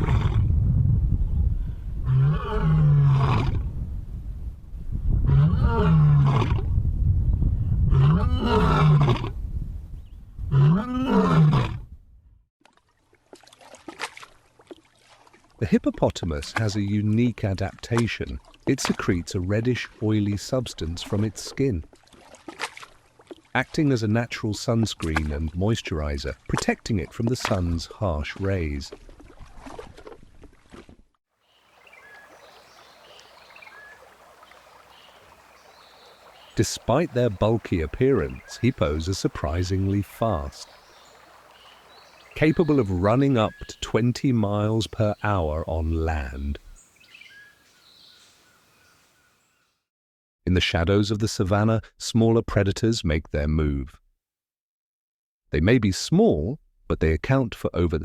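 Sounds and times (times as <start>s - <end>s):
lion roaring: 0.0s - 0.5s, 2.0s - 3.6s, 5.3s - 6.6s, 7.9s - 9.3s, 10.5s - 11.8s
running water ambience: 12.6s - 49.6s
faint bird chirps: 31.4s - 36.9s, 40.6s - 43.9s, 46.6s - 49.8s.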